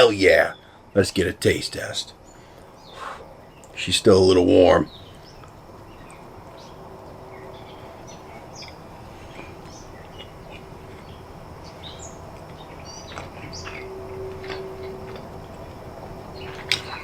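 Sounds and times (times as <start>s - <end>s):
birds chirping: 0.0s - 17.0s
outdoor hush: 0.0s - 17.0s.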